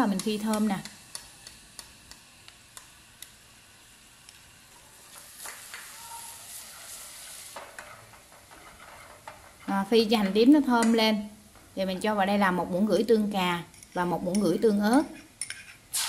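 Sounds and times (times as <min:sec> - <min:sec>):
shallots sizzling in hot oil: 0:00.0 - 0:11.0
chopsticks clicking against pot: 0:00.1 - 0:03.4.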